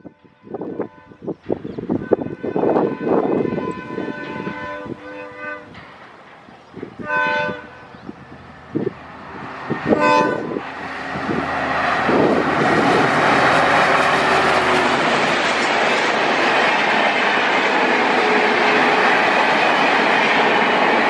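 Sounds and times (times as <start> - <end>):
locomotive horn blast: 0.0 - 5.9, 7.0 - 8.0, 8.7 - 15.3
train running past: 0.0 - 21.0
wheels clattering on rails: 5.6 - 21.0.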